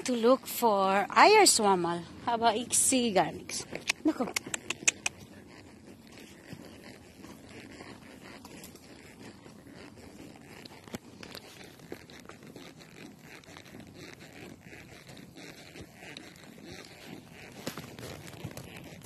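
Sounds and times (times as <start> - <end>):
footsteps crunching on rough ground: 4.6 - 19.0.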